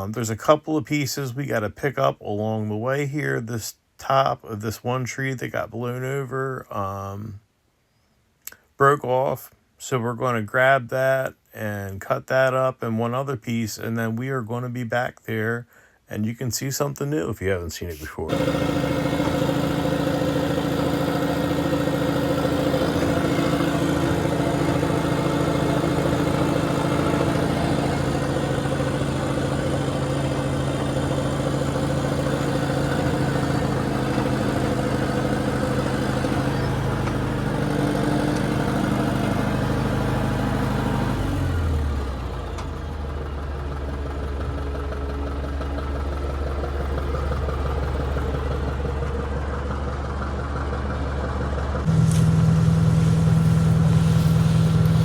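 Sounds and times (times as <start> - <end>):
heavy machine engine running: 18.3 - 55.0.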